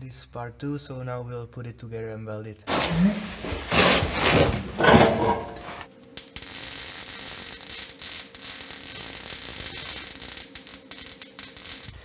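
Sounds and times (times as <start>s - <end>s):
welding arc crackling and hissing: 2.7s - 12.0s.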